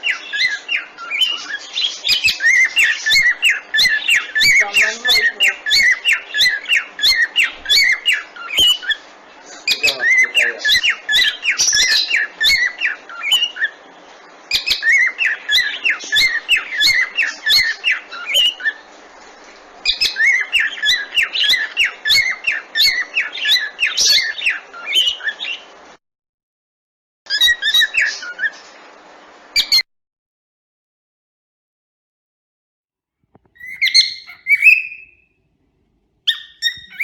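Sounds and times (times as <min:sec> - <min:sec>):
cockatiels chirping and whistling: 0:00.0 - 0:13.8, 0:14.5 - 0:18.8, 0:19.8 - 0:25.6, 0:27.3 - 0:28.7, 0:29.6 - 0:29.8, 0:33.4 - 0:35.2, 0:36.3 - 0:37.0.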